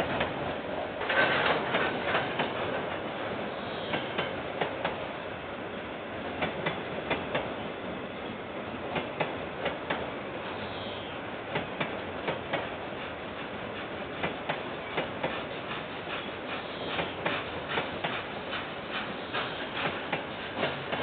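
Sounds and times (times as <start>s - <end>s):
train wheels rumbling on rail: 0.0s - 21.0s
wheels clicking over rail joints: 1.0s - 3.0s.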